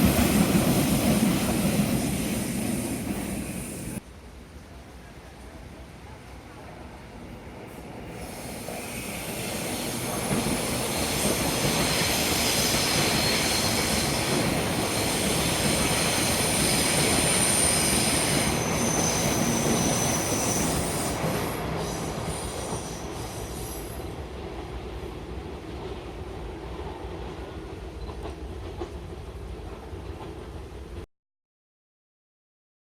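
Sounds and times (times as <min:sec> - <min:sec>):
train wheels squealing: 0:07.7 - 0:24.2
train running gear rumble: 0:25.4 - 0:30.9.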